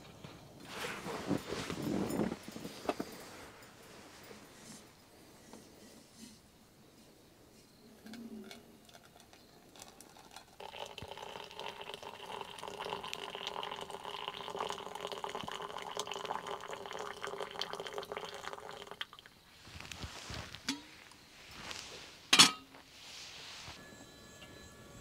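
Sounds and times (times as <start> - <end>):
water pouring into container: 9.8 - 19.4.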